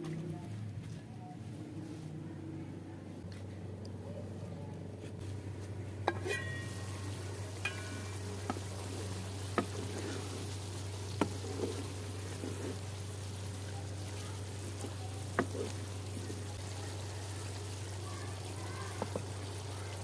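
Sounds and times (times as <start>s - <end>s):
steady low hum: 0.0s - 20.0s
curry frying in a pot: 5.2s - 20.0s.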